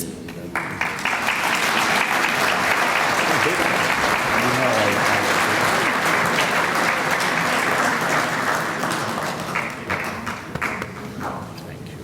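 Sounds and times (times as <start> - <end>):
audience applauding: 0.6 - 11.5.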